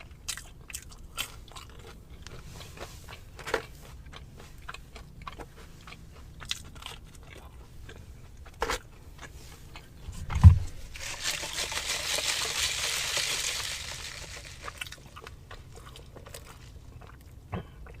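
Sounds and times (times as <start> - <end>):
person chewing crunchy food: 0.0 - 10.1, 10.9 - 18.0
low thump: 10.3 - 10.8.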